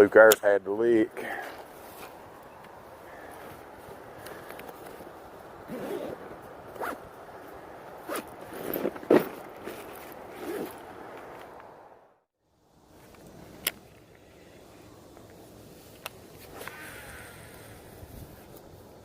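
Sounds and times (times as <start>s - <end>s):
zipper pulled open: 5.7s - 7.0s, 8.0s - 10.8s.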